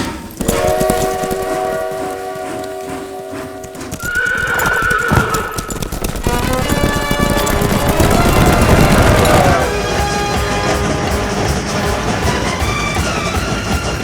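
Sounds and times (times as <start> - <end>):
horses neighing: 0.0 - 9.8
hooves galloping: 0.0 - 14.0
film background music: 6.3 - 14.0.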